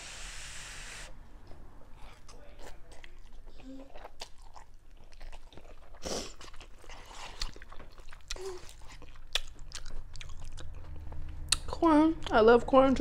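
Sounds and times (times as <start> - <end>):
chewing noodles: 2.0 - 11.6.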